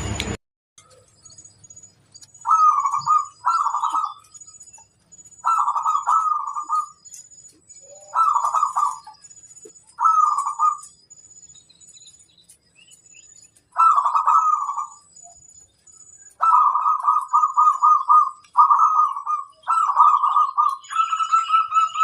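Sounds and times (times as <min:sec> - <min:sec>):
faint high bird chirps: 0:00.8 - 0:22.0
dove trilled cooing: 0:02.4 - 0:07.2, 0:07.8 - 0:11.0, 0:13.7 - 0:15.4, 0:16.2 - 0:22.0.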